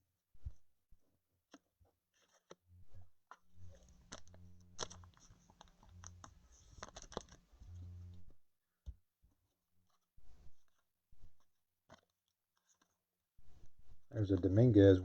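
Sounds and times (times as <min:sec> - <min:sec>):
trading cards being flipped: 0:03.6 - 0:07.9.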